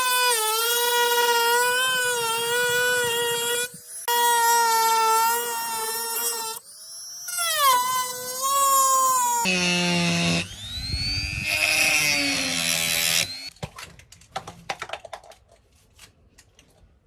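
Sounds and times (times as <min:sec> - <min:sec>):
power tool motor whining: 0:00.0 - 0:13.5.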